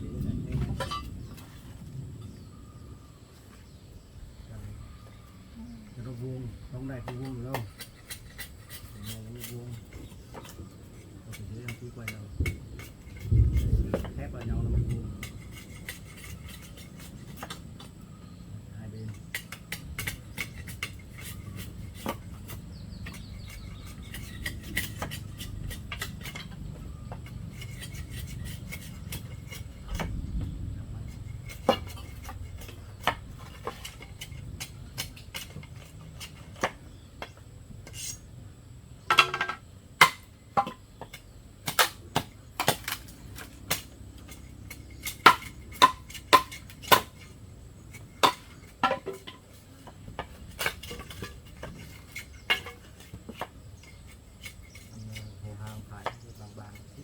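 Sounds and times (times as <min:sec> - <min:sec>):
bamboo pieces knocking: 0:19.1 - 0:38.2, 0:39.0 - 0:57.0.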